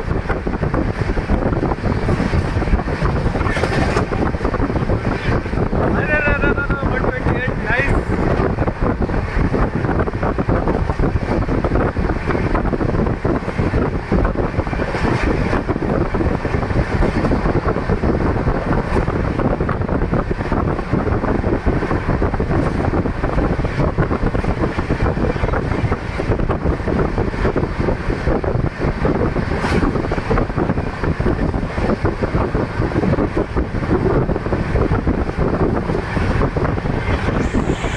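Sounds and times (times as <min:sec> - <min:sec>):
train wheels rumbling on rails: 0:00.0 - 0:37.9
wind buffeting microphone: 0:00.0 - 0:37.9.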